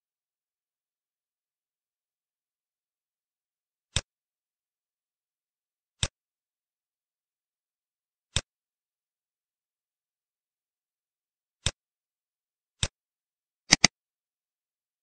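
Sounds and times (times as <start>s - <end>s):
computer mouse clicks: 13.7s - 13.9s.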